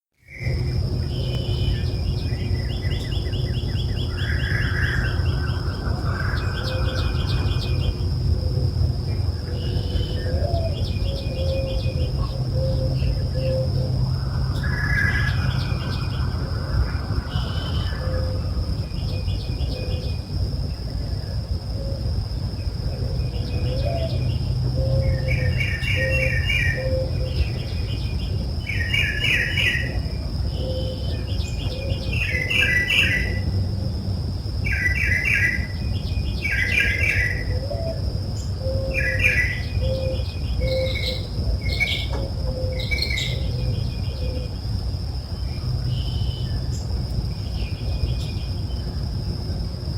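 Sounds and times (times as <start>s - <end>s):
birds calling: 0.3s - 20.3s, 22.8s - 33.7s, 34.6s - 44.8s
low rumble: 0.3s - 28.8s
high-pitched insect drone: 0.3s - 49.9s
trilled bird chirping: 38.4s - 44.6s.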